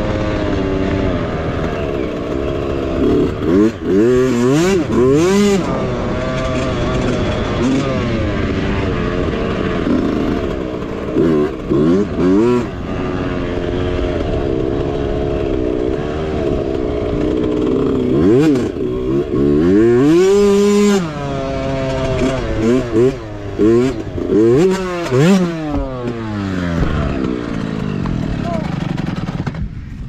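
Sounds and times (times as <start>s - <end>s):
mini bike engine revving: 0.0s - 30.0s.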